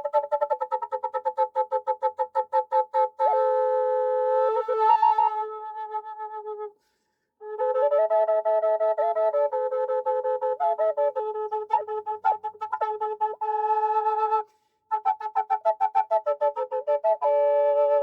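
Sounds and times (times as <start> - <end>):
drone flute playing: 3.2 - 5.9.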